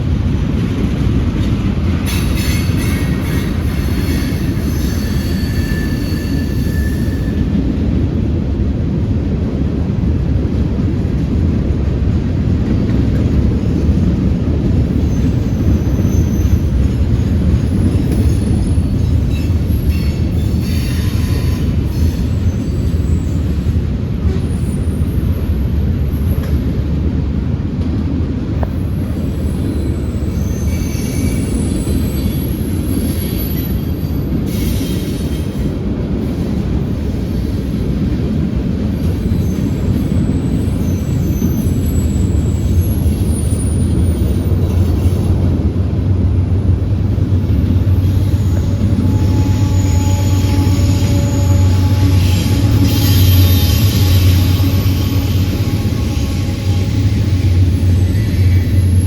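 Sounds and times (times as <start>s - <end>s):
freight train wheels rumbling: 0.0s - 59.0s
wheel squeals: 2.1s - 7.5s, 15.0s - 23.5s, 29.3s - 35.5s, 39.0s - 45.5s, 47.4s - 59.0s.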